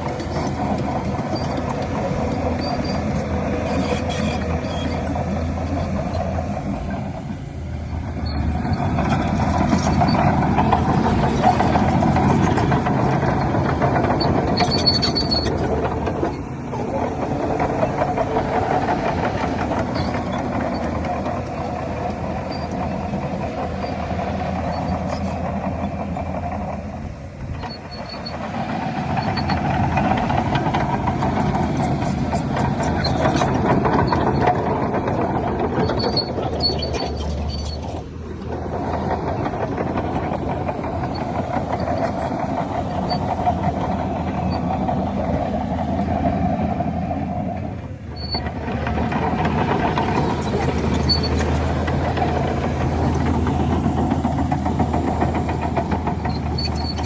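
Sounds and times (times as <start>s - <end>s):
bulldozer diesel engine running: 0.0s - 57.0s
short high squeaks: 1.2s - 6.3s, 14.2s - 17.0s, 35.7s - 38.1s, 55.8s - 57.0s.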